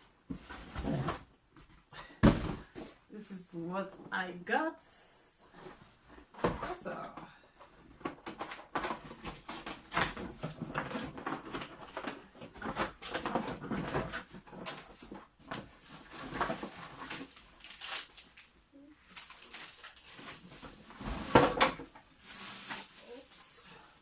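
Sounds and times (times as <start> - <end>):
packaging rustling and crinkling: 7.8 - 23.6.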